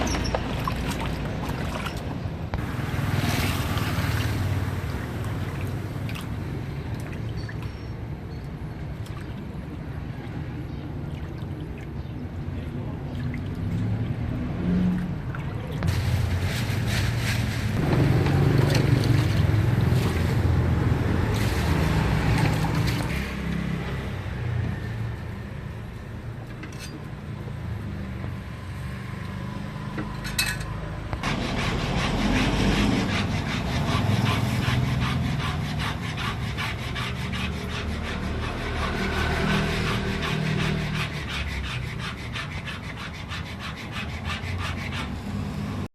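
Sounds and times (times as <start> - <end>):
knife scraping raw fish: 31.4 - 45.2.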